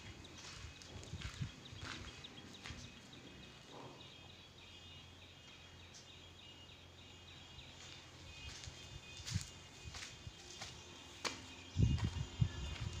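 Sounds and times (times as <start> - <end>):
footsteps on rubble: 0.0 - 3.3, 7.8 - 13.0
faint high bird chirping: 0.0 - 13.0.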